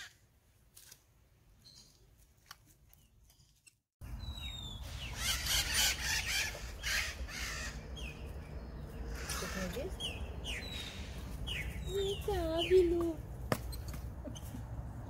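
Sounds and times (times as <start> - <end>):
birds chirping: 2.9 - 14.8.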